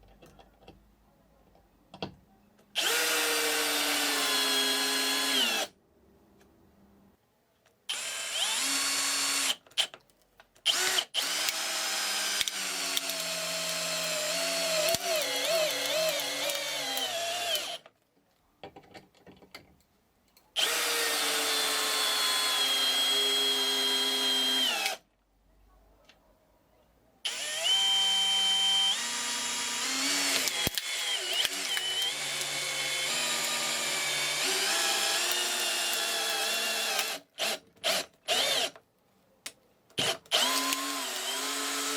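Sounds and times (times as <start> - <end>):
cordless drill motor whine: 2.8 - 5.7, 7.9 - 9.6, 10.7 - 17.8, 20.6 - 25.0, 27.3 - 38.7, 40.3 - 41.9.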